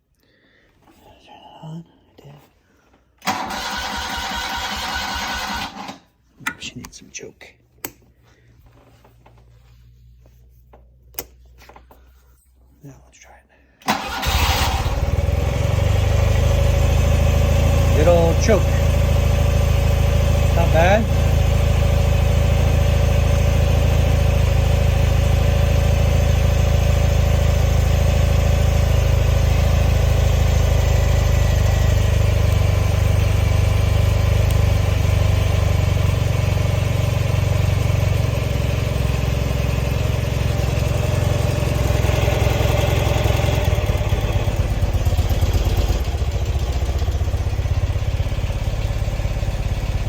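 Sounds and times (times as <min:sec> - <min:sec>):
motorcycle engine idling rough: 0:14.0 - 0:50.0.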